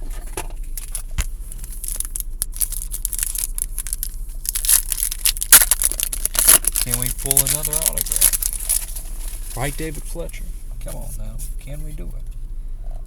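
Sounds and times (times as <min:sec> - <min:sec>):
wrapper tearing and crinkling: 0:00.8 - 0:09.8.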